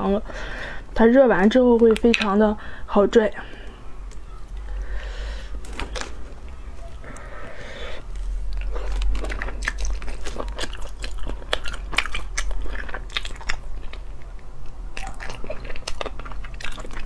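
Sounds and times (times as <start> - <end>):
mouth chewing with clicks: 8.1 - 17.0.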